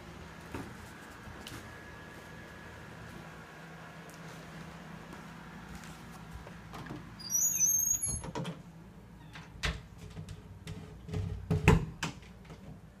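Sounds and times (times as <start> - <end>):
high-pitched squeak: 7.2 - 8.2.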